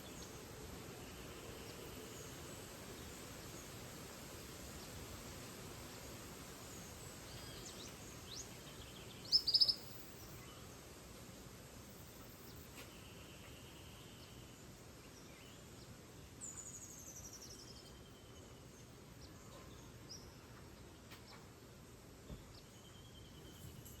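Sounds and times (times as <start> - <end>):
steady background hiss: 0.0 - 24.0
bird calls: 7.3 - 10.7.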